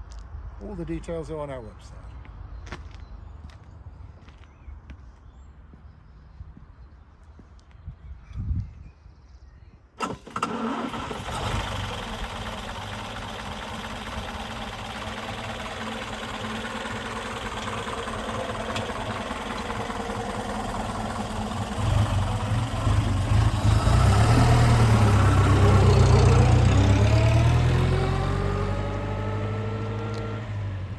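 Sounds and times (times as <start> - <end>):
car engine accelerating: 10.4 - 30.9.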